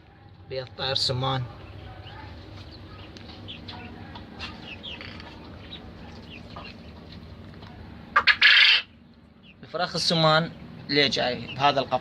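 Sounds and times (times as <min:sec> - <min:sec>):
quail chirping: 0:01.6 - 0:07.2, 0:08.1 - 0:12.0.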